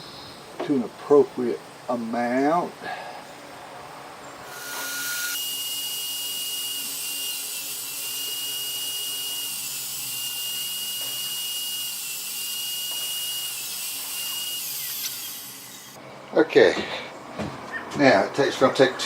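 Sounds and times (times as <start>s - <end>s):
router motor whining: 4.4s - 16.0s.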